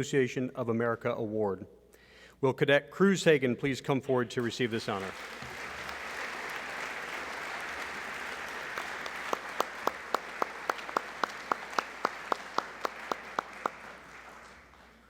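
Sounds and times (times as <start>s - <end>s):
sharp even claps: 4.4s - 15.0s
audience applauding: 4.5s - 15.0s.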